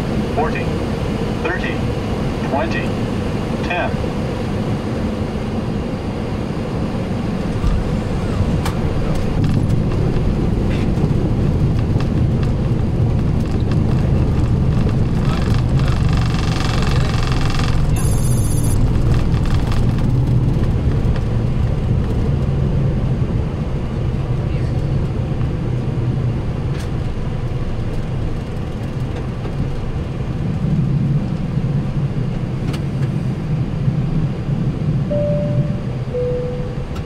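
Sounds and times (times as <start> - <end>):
engines and wheels rumbling: 0.0 - 37.0
short high tone: 35.1 - 37.0.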